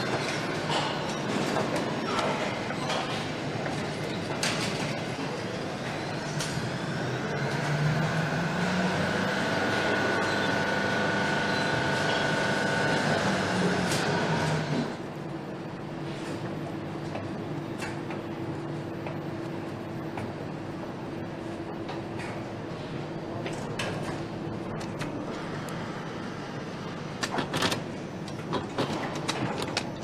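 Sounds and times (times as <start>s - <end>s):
machinery humming: 0.0s - 30.0s
high machine whine: 4.9s - 16.0s.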